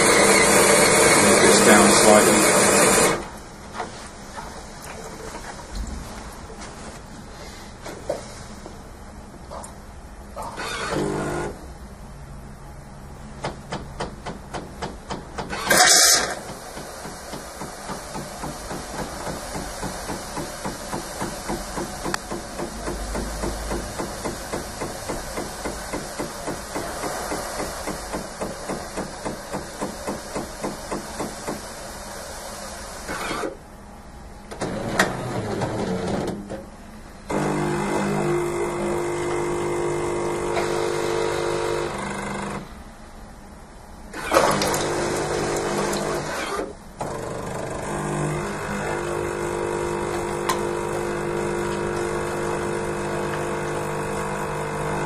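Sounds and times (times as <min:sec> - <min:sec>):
coffee machine frothing milk: 0:00.0 - 0:03.2, 0:37.3 - 0:41.9, 0:44.2 - 0:55.0
steady hiss: 0:15.7 - 0:33.5.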